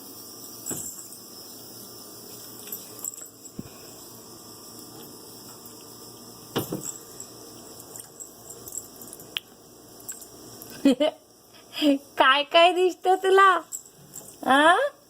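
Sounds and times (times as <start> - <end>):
steady hiss: 0.0 - 14.8.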